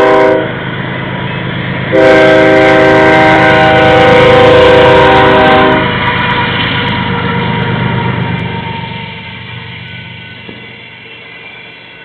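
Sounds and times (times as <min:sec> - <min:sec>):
locomotive air horn: 0:00.0 - 0:00.6, 0:01.9 - 0:06.0
passing train rumble: 0:00.0 - 0:12.0.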